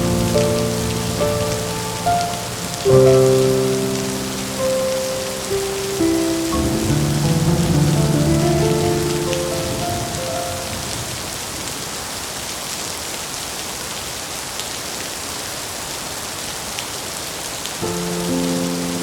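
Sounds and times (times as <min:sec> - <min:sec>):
soft sustained musical notes: 0:00.0 - 0:10.9, 0:17.8 - 0:19.0
rain falling: 0:00.0 - 0:19.0.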